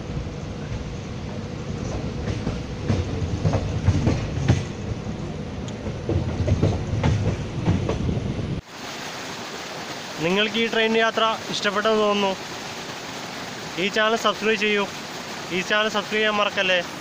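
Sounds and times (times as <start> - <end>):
train low rumble: 0.0 - 8.6
train wheels clickety-clack: 1.8 - 4.8, 5.7 - 8.2
small waterfall rushing: 8.6 - 17.0.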